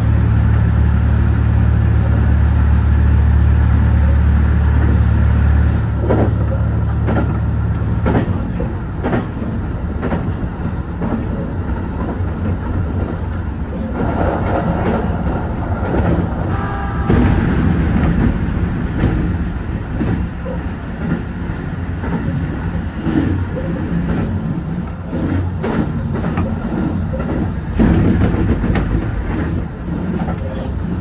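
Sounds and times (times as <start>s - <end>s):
railcar low hum: 0.0s - 31.0s
wheels clicking over rail joints: 6.0s - 16.5s.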